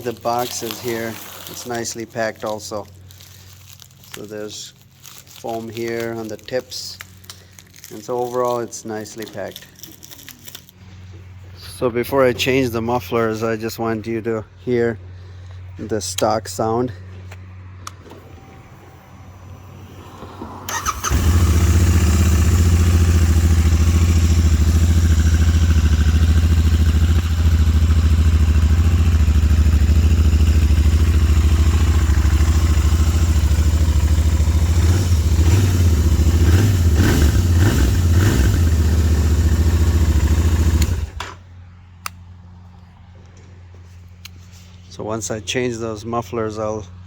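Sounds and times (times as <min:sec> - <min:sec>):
motorcycle engine idling: 0:20.7 - 0:41.3.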